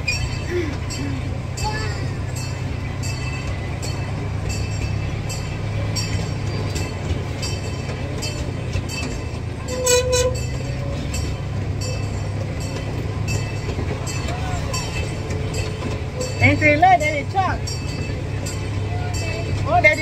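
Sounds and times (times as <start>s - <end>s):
miniature train rumbling: 0.0s - 20.0s
wheels clicking on track: 0.0s - 20.0s
train horn toots: 9.6s - 10.6s.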